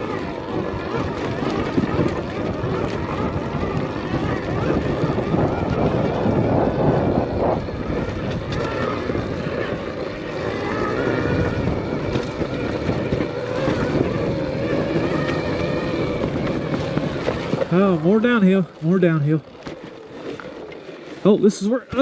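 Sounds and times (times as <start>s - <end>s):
electric motor whine: 0.0s - 21.3s
tyres rumbling over rocks: 0.0s - 22.0s.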